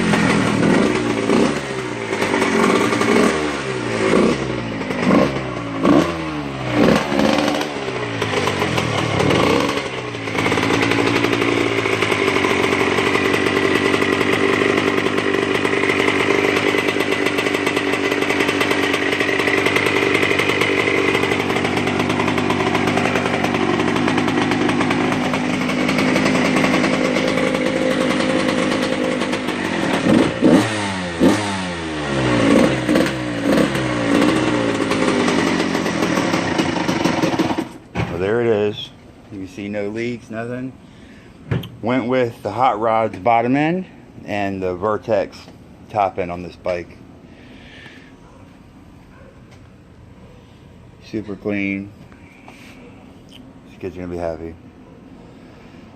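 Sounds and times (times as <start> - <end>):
two-stroke engine revving: 0.0 - 37.8.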